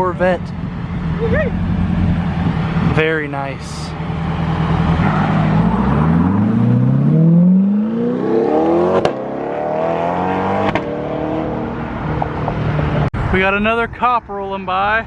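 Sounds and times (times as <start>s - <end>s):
car engine accelerating: 0.0s - 13.1s.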